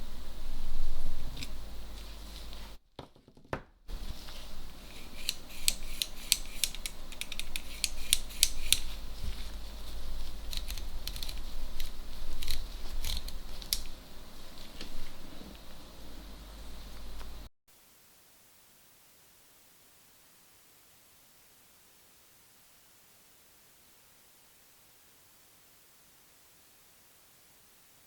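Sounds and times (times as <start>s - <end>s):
metallic clicks of hand tools: 4.9s - 8.9s.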